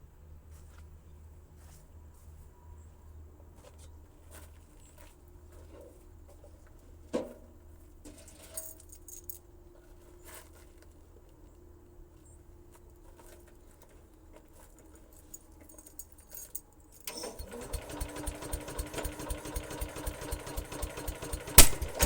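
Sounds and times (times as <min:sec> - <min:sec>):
keys jangling: 0:08.3 - 0:09.4, 0:14.7 - 0:17.1.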